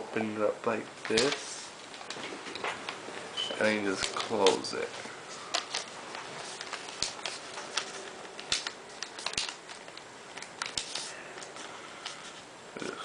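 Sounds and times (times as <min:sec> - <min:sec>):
paper crinkling: 0:03.6 - 0:12.4.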